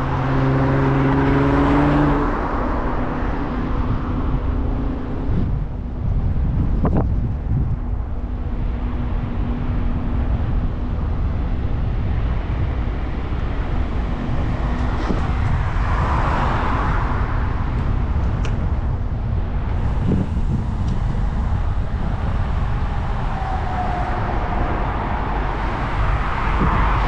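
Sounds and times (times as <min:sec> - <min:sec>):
road traffic: 0:00.0 - 0:27.0
wind rumbling on microphone: 0:00.0 - 0:27.0
vehicle passing: 0:19.3 - 0:27.0.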